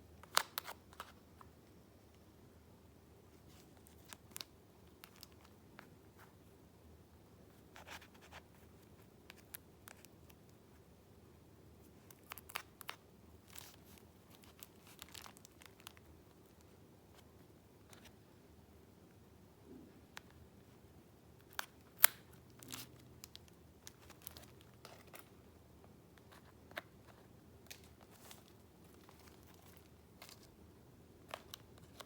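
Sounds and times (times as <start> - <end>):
paper rustling and crinkling: 26.3 - 30.6.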